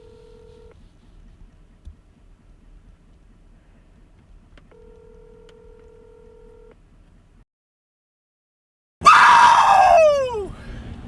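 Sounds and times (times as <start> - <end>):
electronic telephone tone: 0.0 - 0.8, 4.7 - 6.7.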